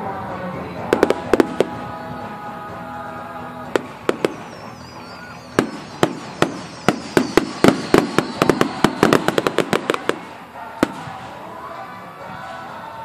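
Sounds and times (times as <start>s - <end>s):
fireworks cracking: 0.9s - 2.1s, 3.7s - 11.4s
high whistle falling: 4.2s - 9.5s.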